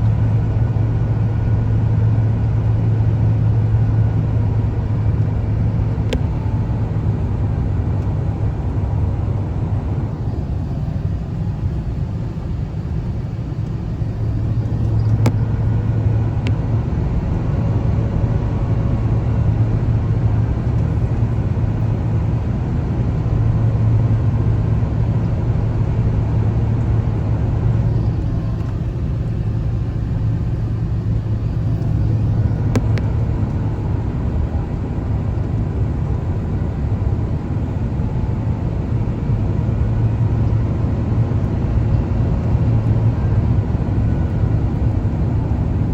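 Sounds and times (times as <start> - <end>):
aircraft cabin engine rumble: 0.0 - 45.9
faint clicks: 31.4 - 33.6.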